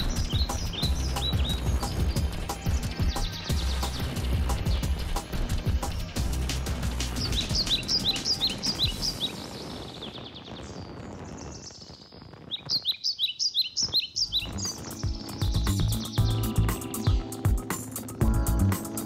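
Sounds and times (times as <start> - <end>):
soft background music: 0.0 - 9.4, 14.2 - 19.0
high bird chirps: 0.0 - 19.0.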